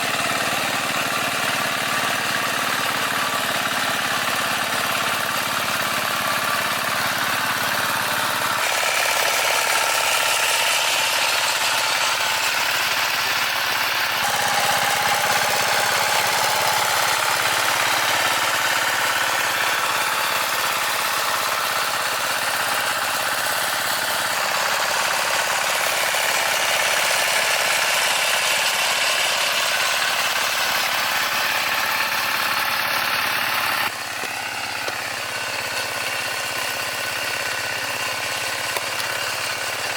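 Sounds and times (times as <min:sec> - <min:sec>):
digger engine running: 0:00.0 - 0:39.9.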